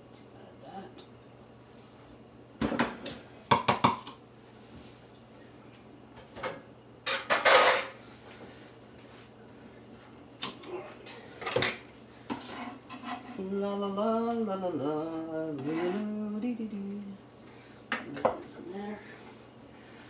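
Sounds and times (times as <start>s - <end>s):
utensils clattering against dishes: 6.2s - 8.0s.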